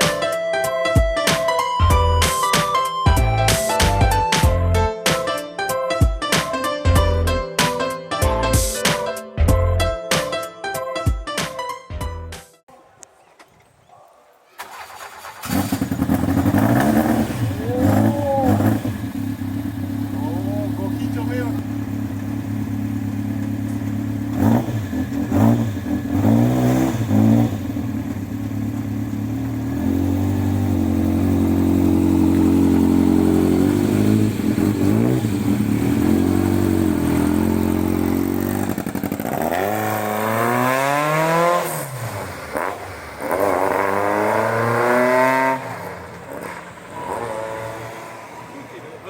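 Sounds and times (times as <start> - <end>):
sports car engine revving: 15.4 - 49.0.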